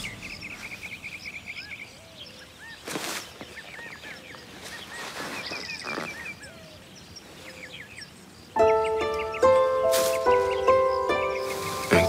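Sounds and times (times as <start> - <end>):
small birds chirping: 0.0 - 12.0
rustling: 9.8 - 10.7.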